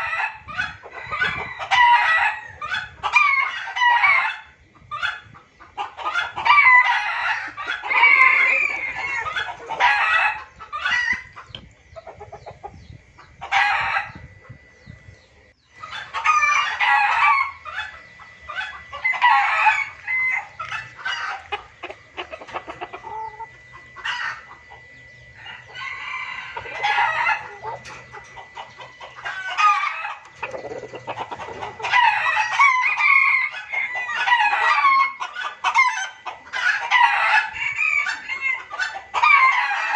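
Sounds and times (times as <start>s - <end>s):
junglefowl crowing and clucking: 0.0s - 39.9s.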